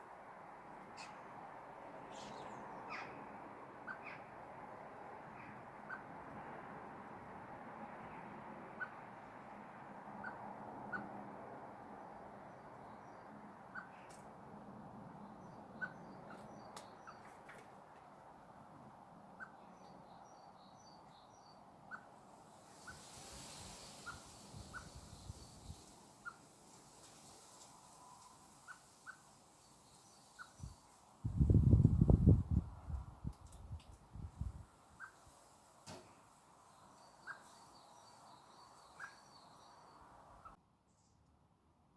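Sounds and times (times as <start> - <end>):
faint bird call notes: 38.7 - 39.6.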